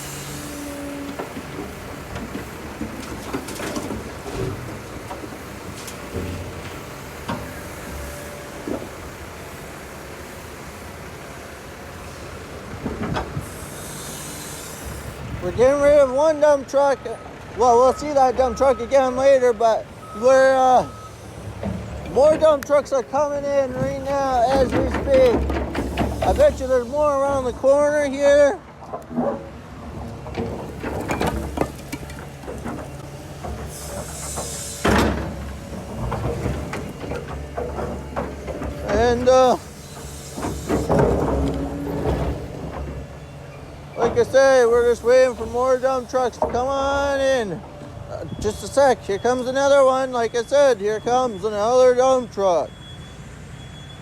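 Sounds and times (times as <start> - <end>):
diesel machinery rumbling: 0.0 - 54.0
metal knocks and clanks: 1.1 - 8.1, 23.6 - 26.7, 28.7 - 43.4.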